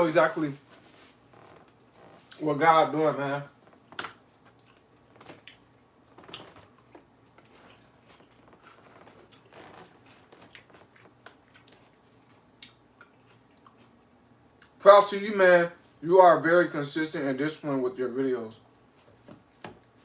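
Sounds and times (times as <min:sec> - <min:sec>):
chewing crisp lettuce: 0:04.4 - 0:14.8.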